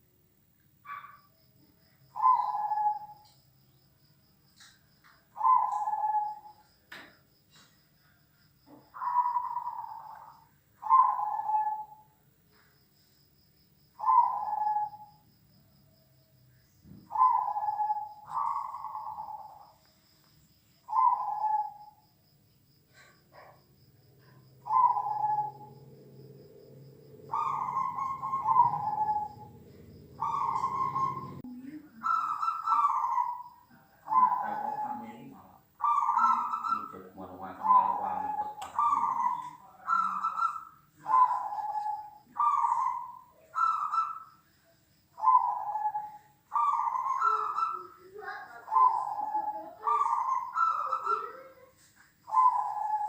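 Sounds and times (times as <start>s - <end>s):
dove cooing: 2.1s - 3.2s, 5.4s - 6.7s, 8.7s - 12.1s, 14.0s - 15.2s, 17.0s - 19.8s, 20.8s - 22.0s, 24.2s - 44.3s, 45.2s - 53.0s.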